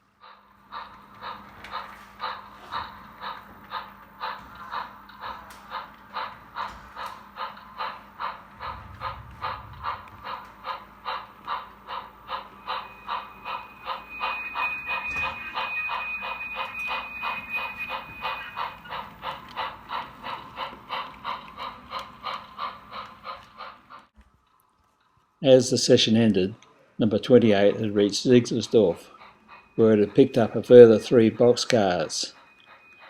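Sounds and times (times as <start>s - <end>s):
model train rhythmic clicking: 0.0s - 24.2s, 25.6s - 33.0s
steady high-pitched tone: 8.4s - 10.9s, 12.3s - 19.0s.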